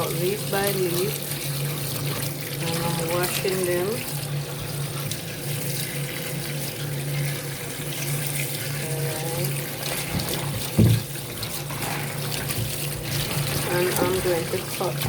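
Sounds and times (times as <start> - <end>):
greens being rinsed: 0.0 - 15.0
tap running into sink: 9.4 - 15.0.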